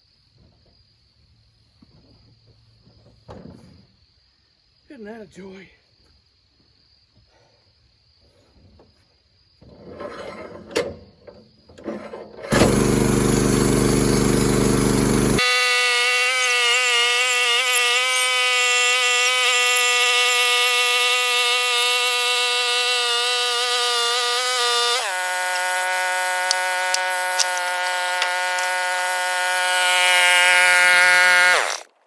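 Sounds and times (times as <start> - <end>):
gas engine running: 12.5 - 15.5, 20.6 - 31.9.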